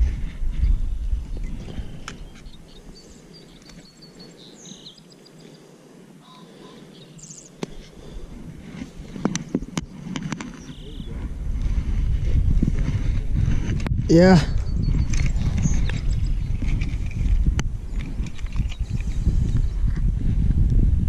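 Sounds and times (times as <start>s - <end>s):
low rumbling on microphone: 0.0s - 2.9s, 10.6s - 21.0s
faint bird chirps: 2.2s - 7.6s, 10.6s - 11.2s.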